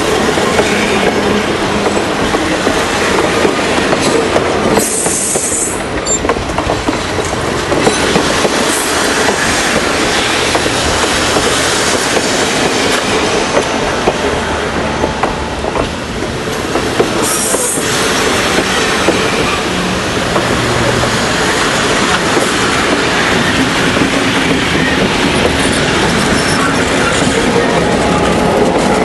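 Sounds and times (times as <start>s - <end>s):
train wheels clicking on rails: 0.0s - 29.0s
high-pitched wheel squeal: 25.7s - 27.8s.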